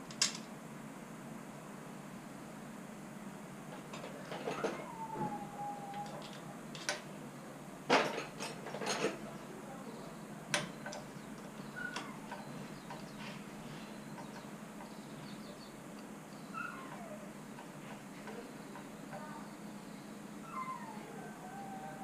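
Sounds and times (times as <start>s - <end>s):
metal engine parts clinking: 7.9s - 9.3s.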